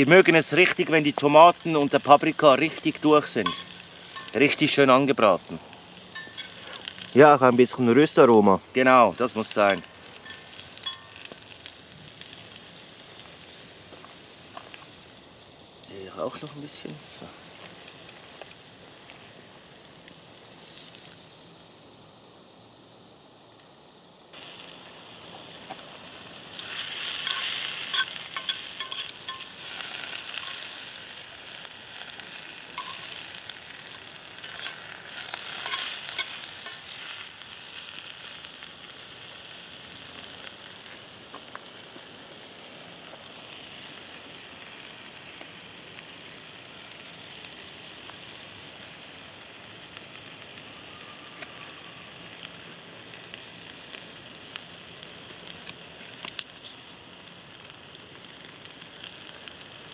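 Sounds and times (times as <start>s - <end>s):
food sizzling in a pan: 0.0s - 21.8s, 23.9s - 59.9s
pan stirring clicks and scrapes: 9.7s - 11.2s, 26.6s - 30.8s, 32.6s - 37.3s.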